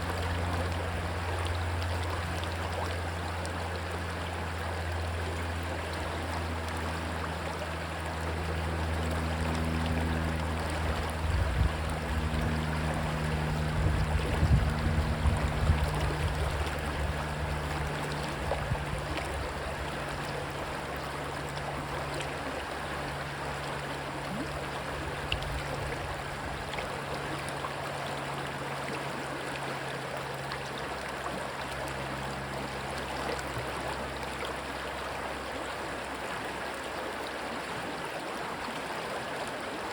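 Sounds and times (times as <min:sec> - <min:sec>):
plane engine drone: 0:00.0 - 0:39.9
stream water rushing: 0:00.0 - 0:39.9
wind on microphone: 0:10.9 - 0:17.7, 0:18.3 - 0:19.6.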